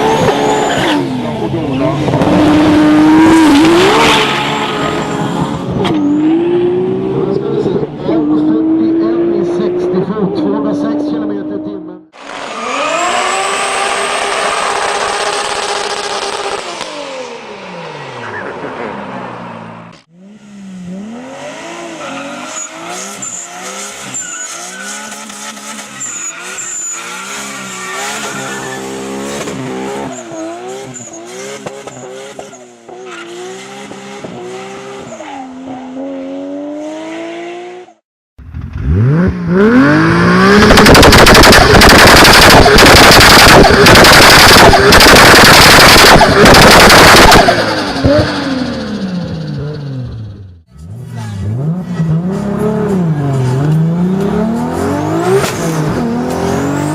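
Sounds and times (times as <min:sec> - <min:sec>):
turbocharged car engine revving: 0:00.0 - 0:38.0, 0:38.7 - 0:56.9
exhaust pops: 0:40.6 - 0:48.4.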